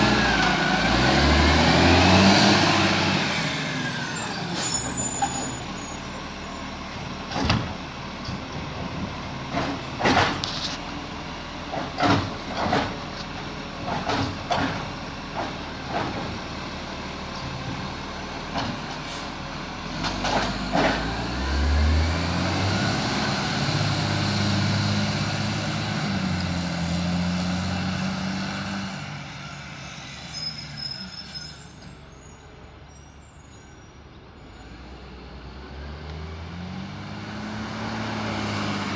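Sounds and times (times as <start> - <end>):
diesel truck engine revving: 0.0 - 5.4, 15.8 - 30.0, 34.6 - 38.9
wheelie bin clunks and bangs: 7.3 - 10.6, 11.7 - 13.1.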